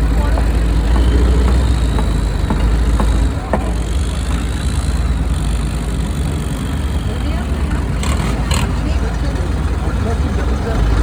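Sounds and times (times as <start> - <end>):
boat engine rumble: 0.0 - 11.0
short knocks: 0.3 - 3.9.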